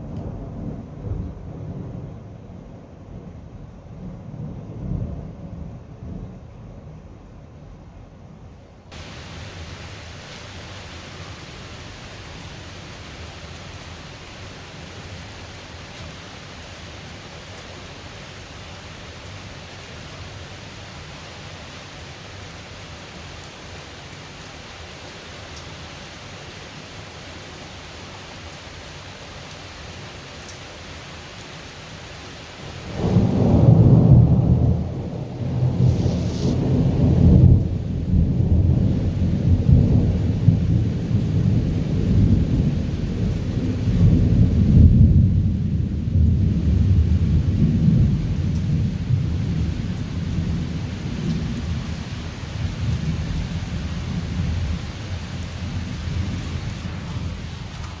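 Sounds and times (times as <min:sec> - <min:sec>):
thunder rumbling: 0:00.0 - 0:07.3, 0:08.9 - 0:21.2, 0:32.6 - 0:58.0
steady rain: 0:00.0 - 0:58.0.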